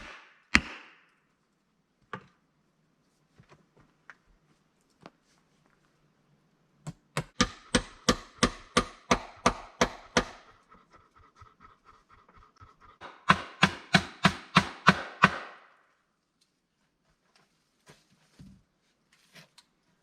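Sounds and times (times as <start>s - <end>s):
hammer blows on wood: 7.3s - 10.5s, 13.0s - 15.6s.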